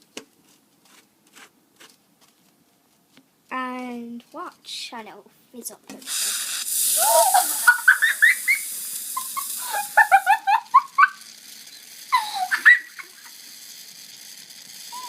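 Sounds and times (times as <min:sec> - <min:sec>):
gas hissing: 0:06.0 - 0:15.0
squeaky whistles: 0:08.0 - 0:08.7.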